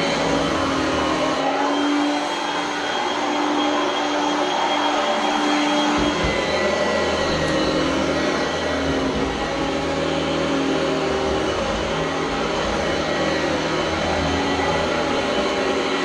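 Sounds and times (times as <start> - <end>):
vacuum cleaner whirring: 0.0 - 16.0.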